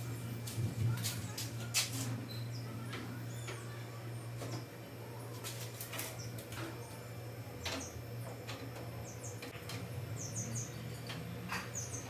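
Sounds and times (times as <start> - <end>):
steady low hum: 0.0 - 12.0
small birds chirping: 2.2 - 5.3, 6.0 - 12.0.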